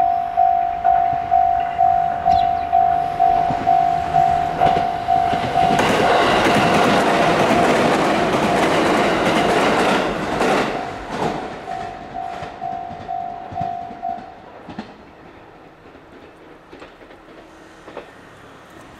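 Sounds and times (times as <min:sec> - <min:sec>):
level crossing warning bell: 0:00.0 - 0:14.4
electric train passing: 0:00.0 - 0:18.9
wheels clacking on rail joints: 0:00.9 - 0:18.9.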